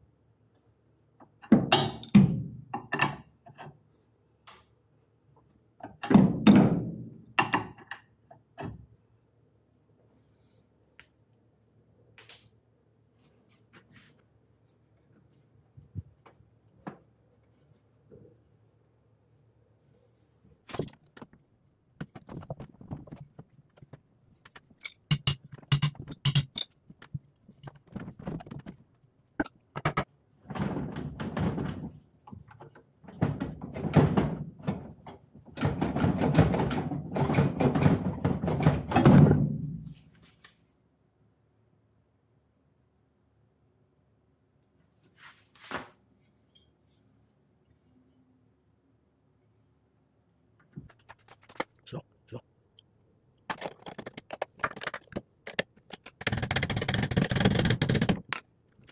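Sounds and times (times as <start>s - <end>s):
tool clicks and metallic knocks: 24.5s - 28.7s, 53.5s - 58.9s
rattling and scraping: 53.4s - 58.9s.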